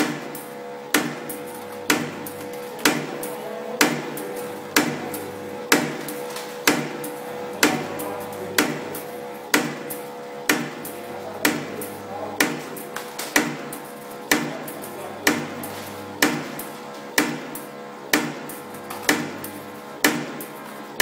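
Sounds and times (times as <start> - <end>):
metallic cutting strikes: 0.0 - 20.5
machine hum: 0.0 - 21.0.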